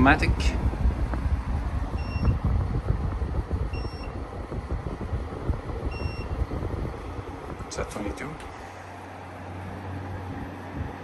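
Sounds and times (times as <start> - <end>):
air conditioner low rumble: 0.0 - 11.0
short electronic beeps: 3.8 - 4.2, 5.9 - 6.4.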